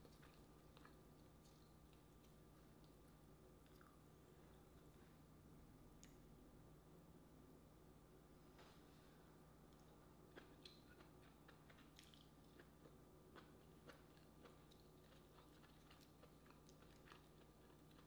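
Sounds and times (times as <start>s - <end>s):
faint chewing: 0.0s - 5.2s, 9.7s - 18.0s.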